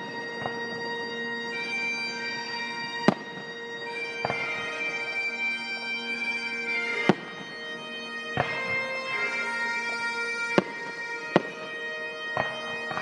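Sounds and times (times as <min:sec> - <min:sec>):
music of long held notes: 0:00.0 - 0:13.0
fireworks bursting: 0:03.1 - 0:03.5, 0:07.0 - 0:07.5, 0:10.6 - 0:11.7.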